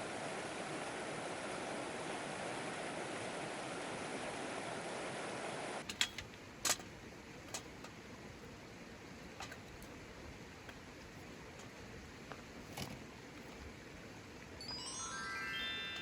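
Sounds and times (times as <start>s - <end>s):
flowing water rushing: 0.0s - 16.0s.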